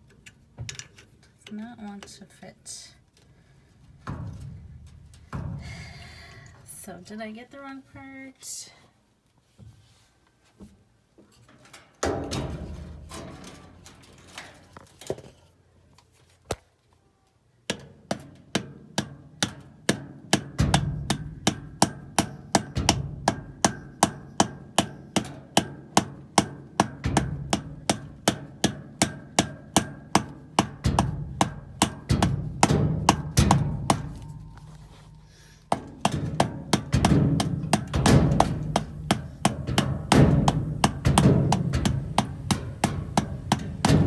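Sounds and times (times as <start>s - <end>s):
hammer striking metal part: 19.4s - 44.0s.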